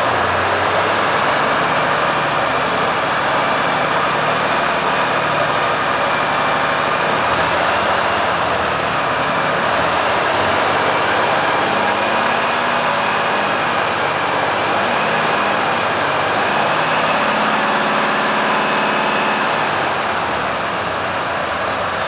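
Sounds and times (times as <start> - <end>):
diesel truck idling: 0.0 - 22.0.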